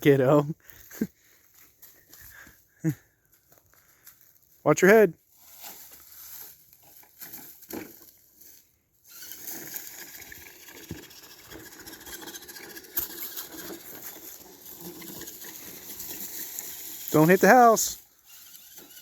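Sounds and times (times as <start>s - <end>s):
toy car motor whine: 9.0s - 19.0s.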